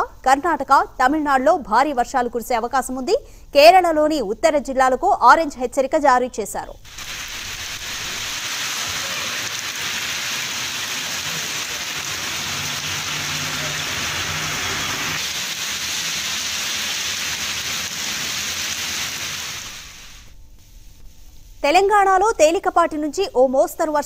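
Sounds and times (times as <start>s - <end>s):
heavy rain on a street: 6.9s - 20.2s.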